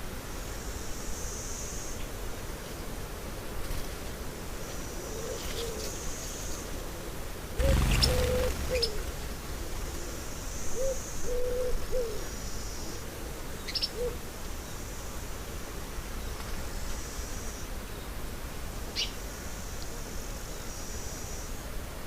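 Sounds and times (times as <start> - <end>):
bird hooting coos: 5.0 - 6.2, 7.6 - 12.4, 13.8 - 14.2
low rumble on microphone: 7.6 - 10.6
thin steady high buzz: 7.6 - 11.3
small birds chirping: 7.6 - 12.3.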